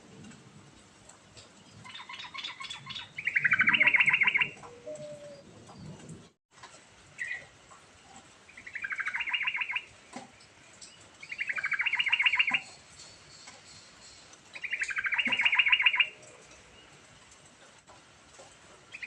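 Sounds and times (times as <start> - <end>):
bulbul singing: 1.9 - 5.5, 8.5 - 9.9, 10.8 - 16.9.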